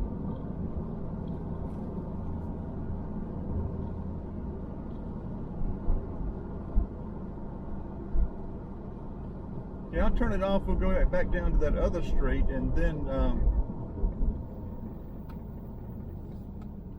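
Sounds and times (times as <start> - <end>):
low thumps from road bumps: 0.0 - 7.3
car engine and tyre rumble: 0.0 - 16.9.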